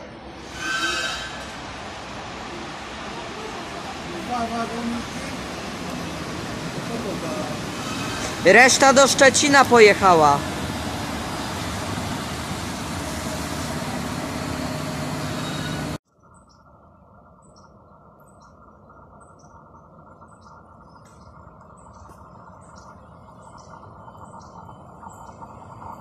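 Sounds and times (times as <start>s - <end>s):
passing train rumbling hiss: 0.0s - 16.0s, 21.9s - 26.0s
approaching train low rumble: 0.0s - 26.0s.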